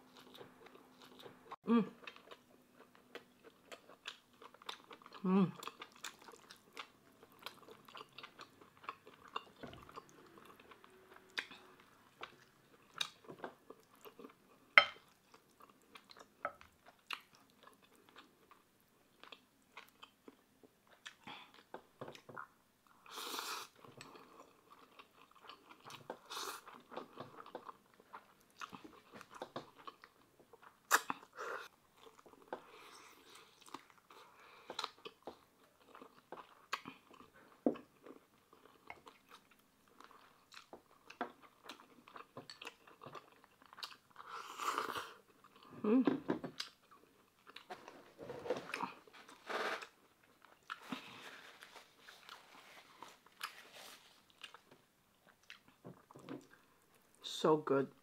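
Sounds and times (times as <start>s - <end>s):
chewing and wet mouth smacks: 0.1s - 14.4s, 33.3s - 44.3s, 54.3s - 57.2s.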